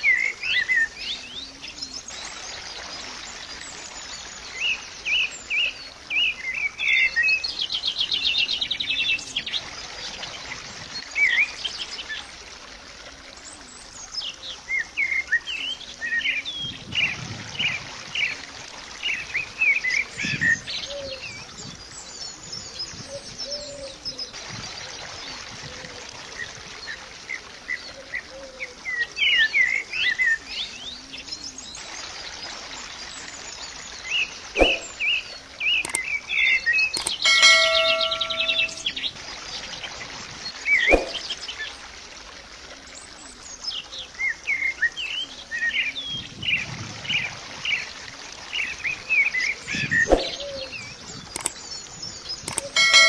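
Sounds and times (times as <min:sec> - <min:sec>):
small birds chirping: 0:27.8 - 0:41.8, 0:48.5 - 0:53.0
bird trill: 0:34.6 - 0:35.0, 0:35.8 - 0:39.0, 0:40.8 - 0:41.3, 0:52.5 - 0:53.0.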